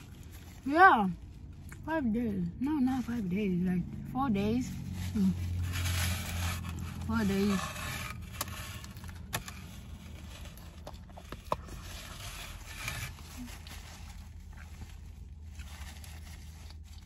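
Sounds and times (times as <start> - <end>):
person chewing a sandwich: 8.1 - 17.0.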